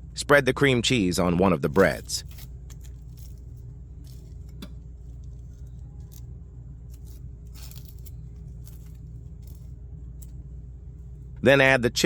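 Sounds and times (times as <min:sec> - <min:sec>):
steady low hum: 0:00.0 - 0:12.0
knife scraping on toast: 0:06.9 - 0:10.3.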